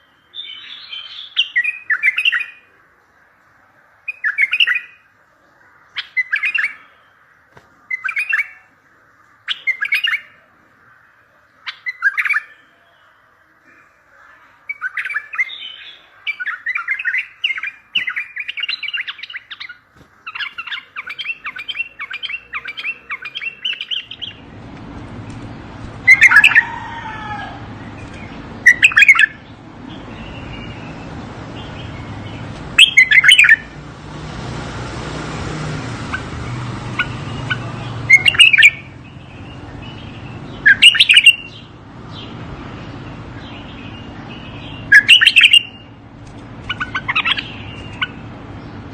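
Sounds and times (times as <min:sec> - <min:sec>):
bulbul singing: 0:14.7 - 0:34.1, 0:35.6 - 0:48.9
low background hum: 0:18.1 - 0:34.1.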